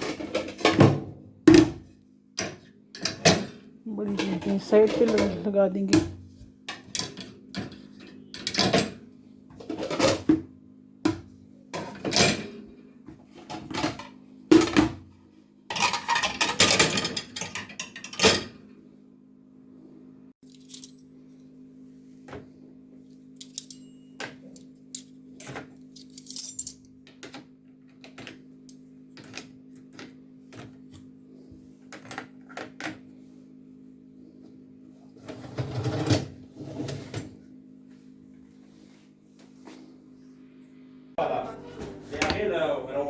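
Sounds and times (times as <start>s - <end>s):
plates clattering into dishwasher: 15.7s - 18.6s
steady low hum: 36.2s - 43.0s.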